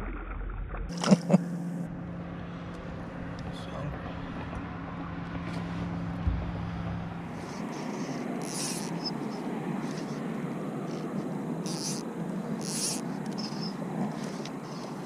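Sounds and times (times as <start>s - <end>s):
insects chirping: 7.2s - 15.0s.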